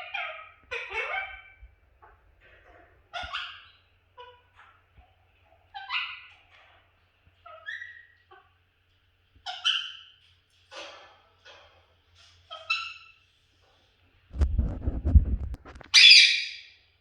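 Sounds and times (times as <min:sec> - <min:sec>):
budgerigar chirping and squawking: 0:00.0 - 0:01.6, 0:03.1 - 0:04.7, 0:05.7 - 0:06.4, 0:07.4 - 0:08.5, 0:09.4 - 0:10.2, 0:15.9 - 0:16.6.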